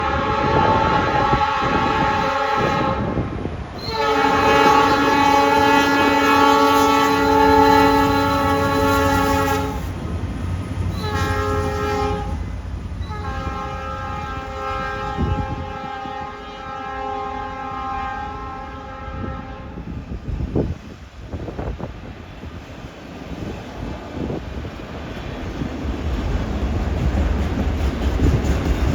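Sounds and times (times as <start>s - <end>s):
locomotive horn blasts: 0.0s - 3.2s, 3.8s - 10.0s, 10.9s - 12.4s, 13.0s - 20.0s
train rumbling past: 0.0s - 28.9s.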